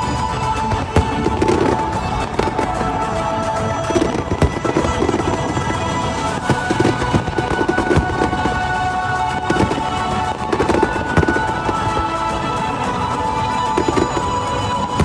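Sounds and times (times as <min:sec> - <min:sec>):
fireworks bursting and crackling: 0:00.0 - 0:15.0
loud show music: 0:00.0 - 0:15.0.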